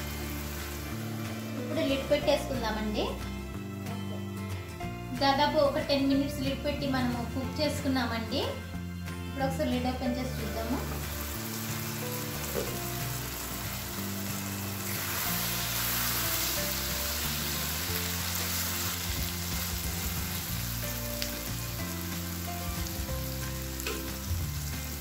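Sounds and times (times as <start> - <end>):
curry sizzling in a frying pan: 0.0 - 3.2, 10.3 - 25.0.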